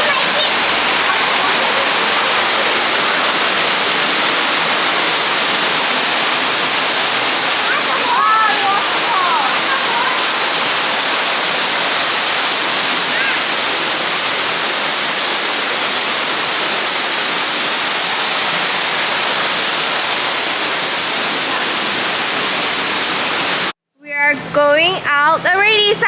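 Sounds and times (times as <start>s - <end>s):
waterfall rushing: 0.0s - 23.7s.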